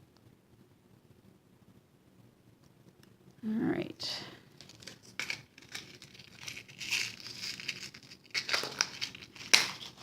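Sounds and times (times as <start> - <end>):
paper rustling and crinkling: 4.5 - 10.0.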